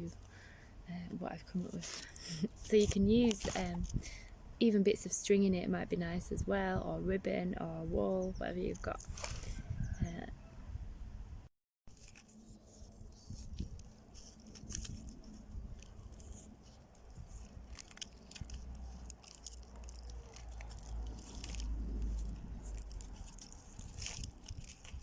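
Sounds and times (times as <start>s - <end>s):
dry plant stems crackling: 1.4s - 4.3s, 11.9s - 25.0s
low rumble: 20.4s - 24.5s.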